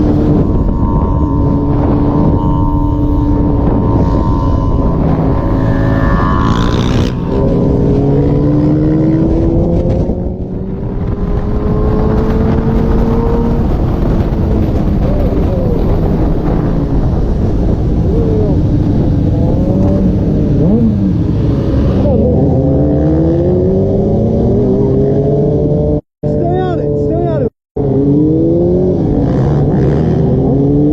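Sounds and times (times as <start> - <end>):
motorcycle engine revving: 0.0 - 26.4, 27.8 - 30.9.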